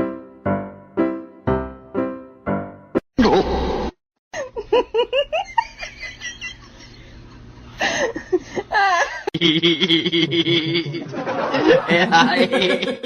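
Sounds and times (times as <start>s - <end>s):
person laughing: 3.2s - 3.6s, 4.4s - 13.0s.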